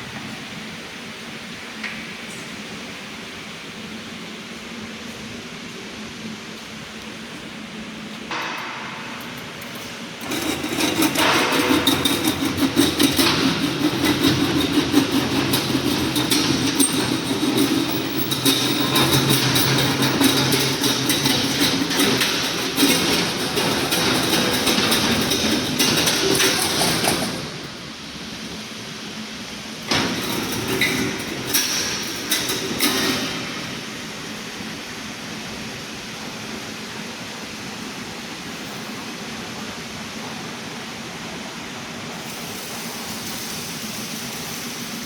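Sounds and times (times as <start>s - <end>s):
machine hum: 7.1s - 35.4s
welding machine clatter: 8.3s - 28.4s, 29.8s - 34.7s, 42.1s - 45.0s.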